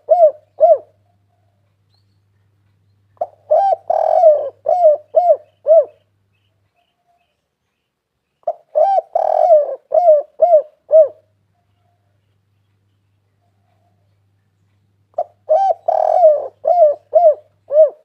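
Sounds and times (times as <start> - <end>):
dove cooing song: 0.0 - 2.0, 3.2 - 7.4, 8.4 - 12.3, 13.3 - 14.2, 15.1 - 18.0.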